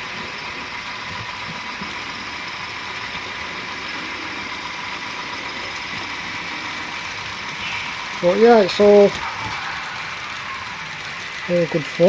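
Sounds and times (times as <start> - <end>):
electric motors humming: 0.0 - 12.0
model train wheels on track: 0.0 - 12.0.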